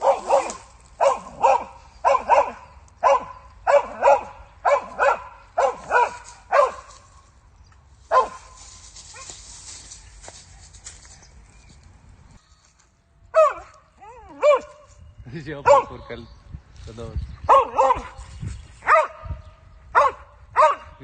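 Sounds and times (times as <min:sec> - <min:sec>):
dog barking: 0:00.0 - 0:06.9, 0:08.1 - 0:08.5, 0:13.4 - 0:14.8, 0:15.6 - 0:16.0, 0:17.5 - 0:18.2, 0:18.8 - 0:20.9.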